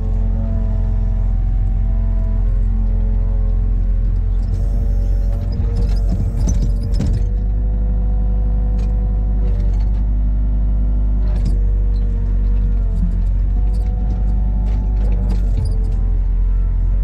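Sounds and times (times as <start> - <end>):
large engine droning: 0.0 - 17.0
clanks and knocks: 5.3 - 7.4.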